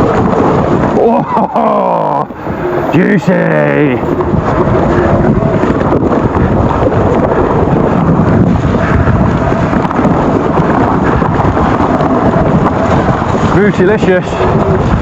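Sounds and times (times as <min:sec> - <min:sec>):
bike rumble: 0:00.0 - 0:15.0
wind buffeting microphone: 0:00.0 - 0:15.0
knocks and rattles: 0:04.0 - 0:15.0.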